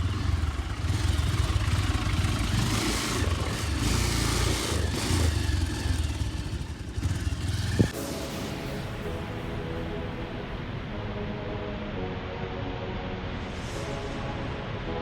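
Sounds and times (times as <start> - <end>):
motorcycle engine running: 0.0 - 8.0
wind noise: 7.5 - 7.9.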